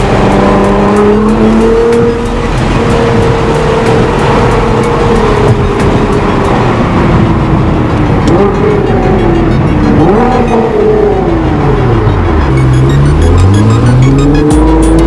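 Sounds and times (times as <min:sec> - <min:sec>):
sports car engine revving: 0:00.0 - 0:15.0.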